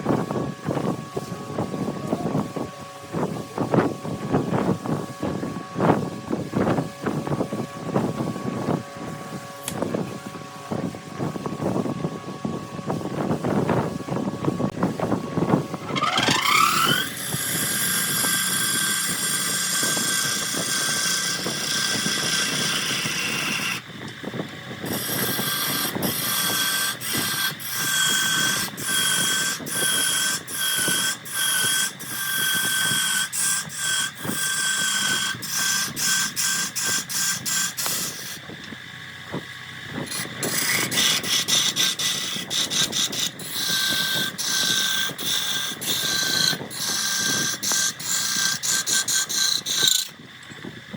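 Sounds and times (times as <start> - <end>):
wood lathe motor whine: 0.0 - 50.9
turning tool cutting wood: 15.0 - 23.9, 24.8 - 39.2, 39.9 - 50.5.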